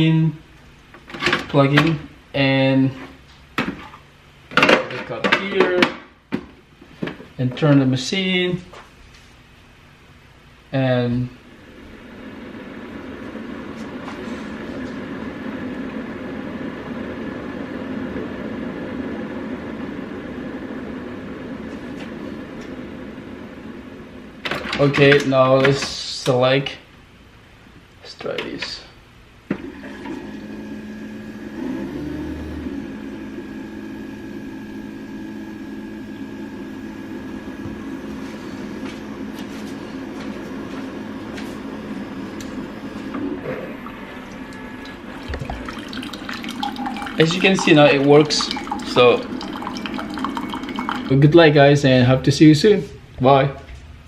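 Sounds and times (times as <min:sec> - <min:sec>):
coffee maker humming: 0:11.4 - 0:25.8, 0:29.5 - 0:51.8.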